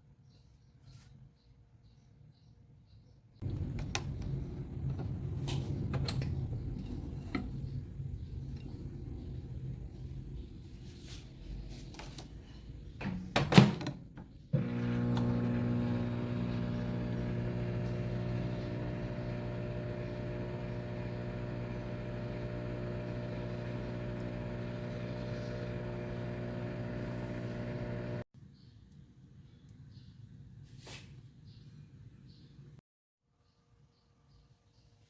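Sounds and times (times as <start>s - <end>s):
microwave oven humming: 3.4s - 10.4s, 14.6s - 28.3s.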